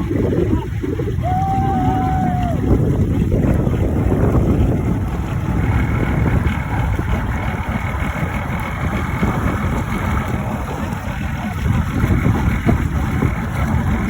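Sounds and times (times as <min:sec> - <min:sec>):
motorboat engine running: 0:00.0 - 0:14.0
wind on microphone: 0:00.0 - 0:14.0.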